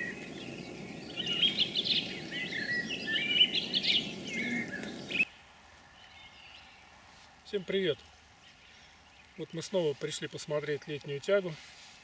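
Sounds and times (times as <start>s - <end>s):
small birds singing: 0.0s - 6.9s
background hiss: 0.0s - 12.0s.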